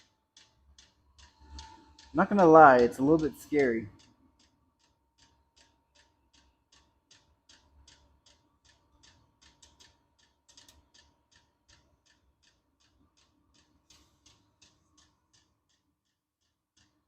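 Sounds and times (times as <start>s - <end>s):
faint heater hum: 1.2s - 4.5s.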